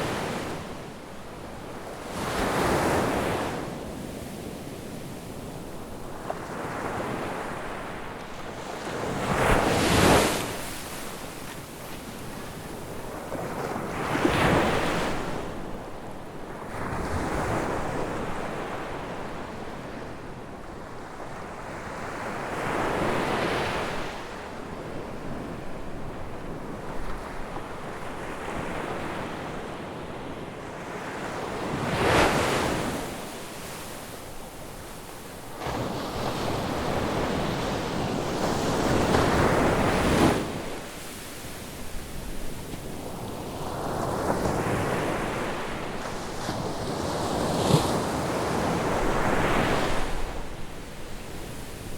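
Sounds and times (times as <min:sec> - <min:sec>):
waves breaking on beach: 0:01.8 - 0:15.6, 0:31.0 - 0:51.9.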